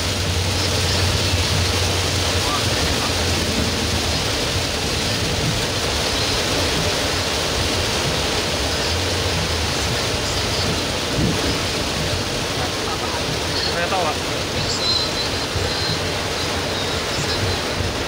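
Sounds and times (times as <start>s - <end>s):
car driving on wet road: 0.0s - 18.0s
heavy rain on car roof: 0.0s - 18.0s.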